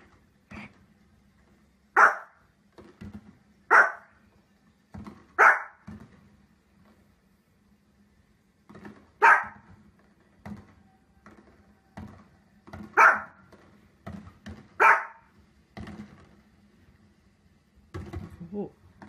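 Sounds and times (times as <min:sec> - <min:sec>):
small dog barking: 0:01.9 - 0:02.4, 0:03.7 - 0:04.1, 0:05.4 - 0:05.8, 0:09.2 - 0:09.7, 0:12.9 - 0:13.4, 0:14.8 - 0:15.3
fireworks thumps from television: 0:02.6 - 0:03.6, 0:04.8 - 0:07.0, 0:08.6 - 0:14.8, 0:15.6 - 0:16.7, 0:17.8 - 0:19.0.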